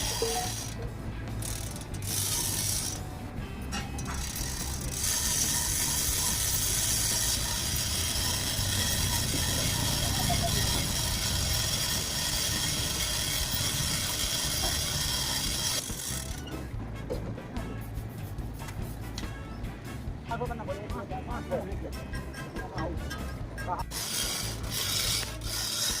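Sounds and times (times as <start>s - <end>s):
metalworking tool hissing and rattling: 0.0s - 0.8s, 1.4s - 3.0s, 3.7s - 16.6s, 23.1s - 26.0s.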